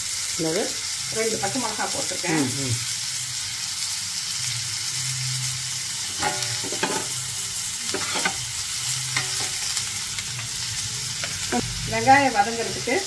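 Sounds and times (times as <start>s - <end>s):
onions sizzling in hot oil: 0.0s - 13.0s
steel spatula scraping a pan: 6.0s - 10.0s.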